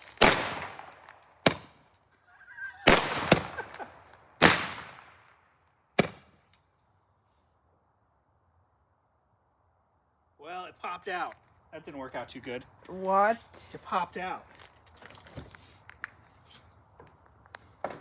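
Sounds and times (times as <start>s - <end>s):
firecrackers banging: 0.0s - 1.9s, 2.8s - 5.2s, 6.0s - 6.4s.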